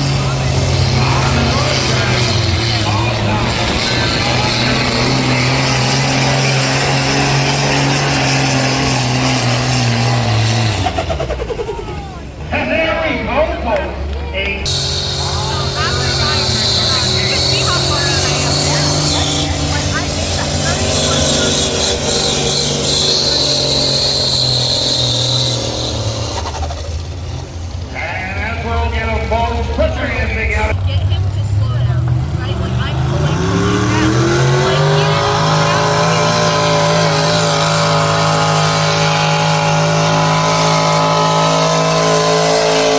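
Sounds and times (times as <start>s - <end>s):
high whine: 0.0s - 10.2s, 14.5s - 30.8s
engine running at full throttle: 0.0s - 42.9s.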